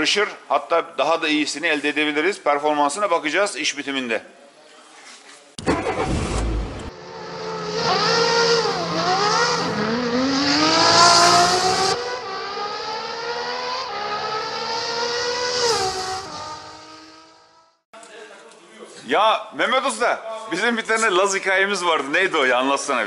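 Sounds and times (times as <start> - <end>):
race car engine revving: 5.6 - 17.5.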